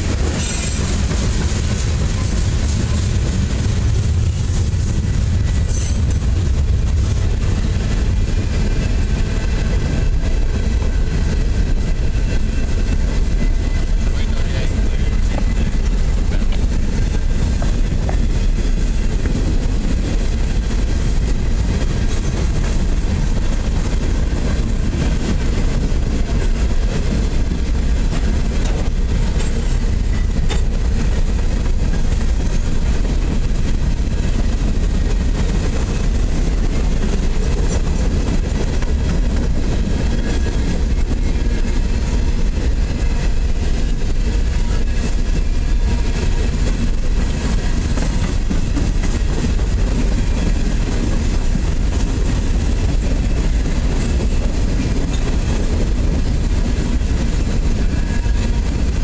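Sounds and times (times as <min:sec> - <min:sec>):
freight train wheels rumbling on rails: 0:00.0 - 0:59.0.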